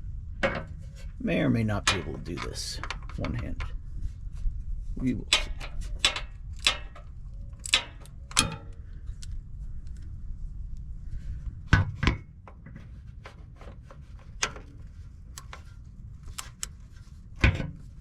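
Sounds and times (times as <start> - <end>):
wrench clicks and knocks: 5.3 - 9.4.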